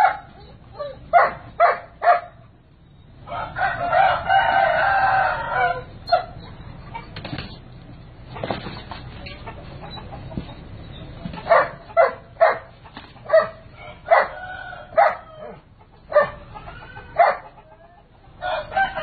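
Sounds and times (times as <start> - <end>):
dog barking: 0.0 - 2.5, 6.1 - 6.4, 11.4 - 16.5, 17.1 - 17.6
rooster crowing: 3.2 - 6.3, 13.3 - 17.6, 18.4 - 19.0.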